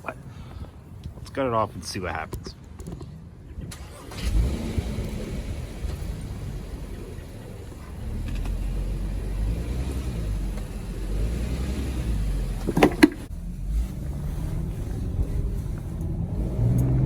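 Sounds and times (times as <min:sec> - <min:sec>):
car engine running: 0:04.2 - 0:17.0.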